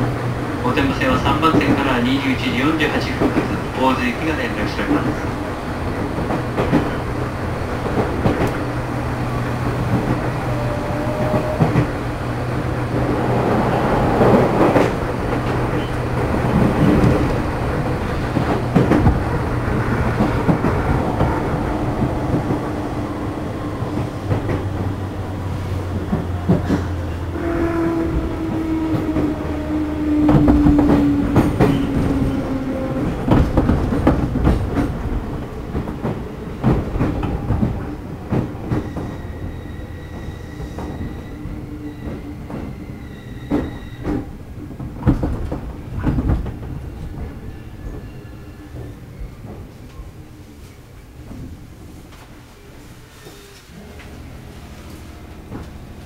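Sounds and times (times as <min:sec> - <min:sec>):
train motors and gears humming: 0:48.7 - 0:56.0.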